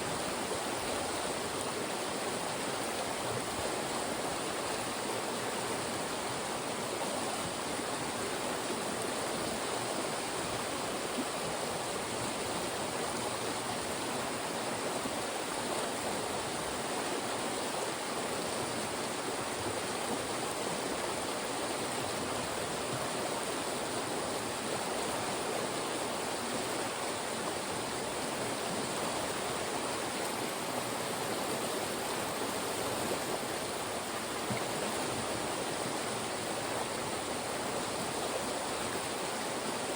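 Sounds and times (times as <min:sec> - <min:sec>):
mountain stream rushing over rocks: 0:00.0 - 0:39.9.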